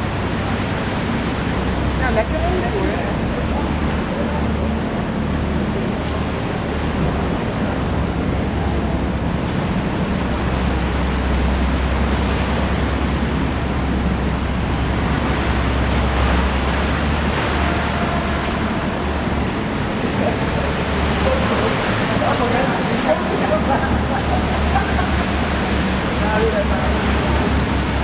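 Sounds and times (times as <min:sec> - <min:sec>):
boat engine drone: 0:00.0 - 0:28.0
water rushing along hull: 0:00.0 - 0:28.0.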